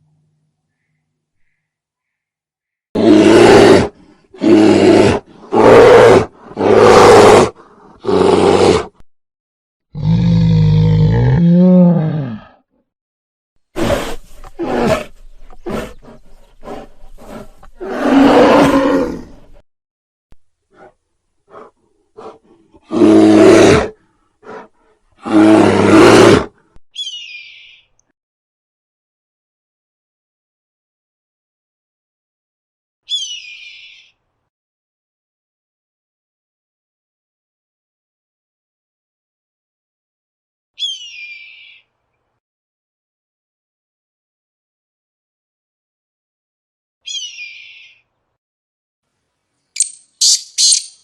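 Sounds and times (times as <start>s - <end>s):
large animal roaring: 3.0s - 8.9s, 9.9s - 12.6s, 13.8s - 19.6s, 21.5s - 24.6s, 25.2s - 26.5s
animal grunting softly: 13.8s - 17.9s, 20.7s - 23.0s, 24.4s - 25.0s
tuneful rising and falling call: 49.8s - 51.0s.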